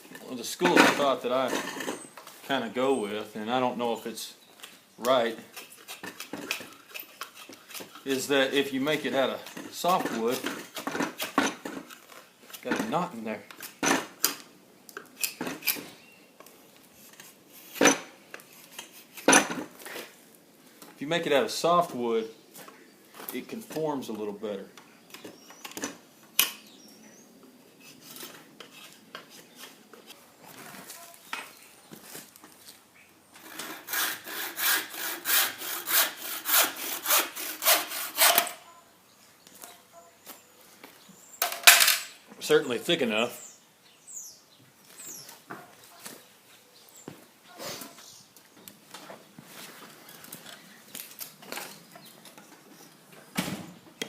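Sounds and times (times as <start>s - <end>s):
hand saw cutting wood: 5.5s - 12.0s, 33.4s - 38.6s
blade cutting wood: 33.4s - 38.6s.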